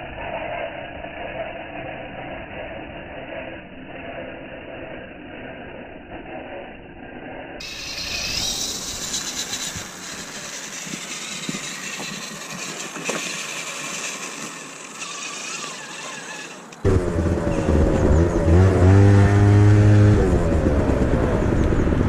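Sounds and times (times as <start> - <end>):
small electric motor whining: 7.6 - 19.8
sharp clicks: 12.8 - 16.9.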